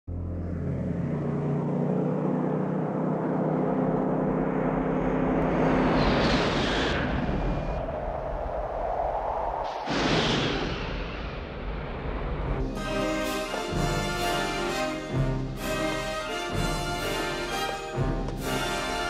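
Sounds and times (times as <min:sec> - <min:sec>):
vehicle engine droning: 0:00.1 - 0:06.5.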